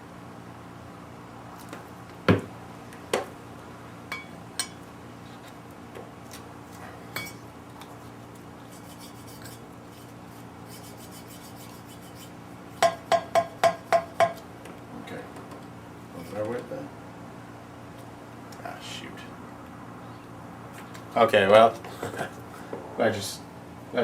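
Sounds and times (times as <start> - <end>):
faint gritty rasp: 8.6 - 12.4.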